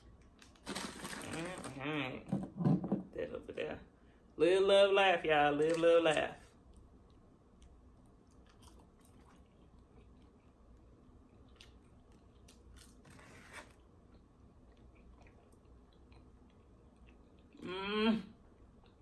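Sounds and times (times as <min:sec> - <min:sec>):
crunching and chewing food: 0:00.0 - 0:01.8, 0:05.6 - 0:17.6.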